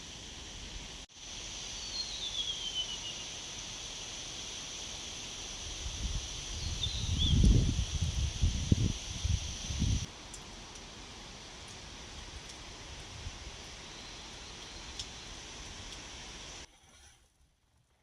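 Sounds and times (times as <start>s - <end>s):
outdoor hiss: 0.0s - 16.7s
bird whistled call: 1.8s - 3.3s, 6.6s - 7.5s
wind buffeting microphone: 5.8s - 10.1s.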